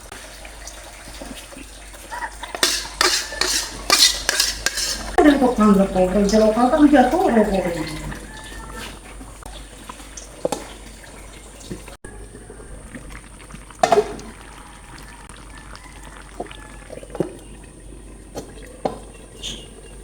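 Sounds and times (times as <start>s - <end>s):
liquid in a pot: 0.0s - 20.0s
utensils knocking on cookware: 2.4s - 9.0s.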